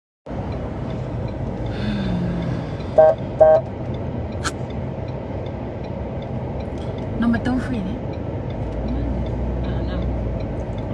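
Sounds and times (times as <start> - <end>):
road traffic rumble: 0.3 - 10.9
vehicle horn toots: 3.0 - 3.7.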